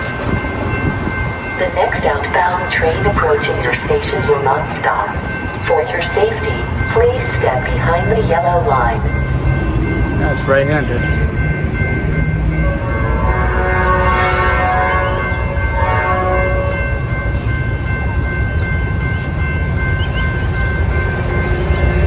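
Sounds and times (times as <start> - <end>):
high steady tones: 0.0 - 13.8
train passing at speed: 0.0 - 22.0
locomotive air horn chord: 12.6 - 16.8.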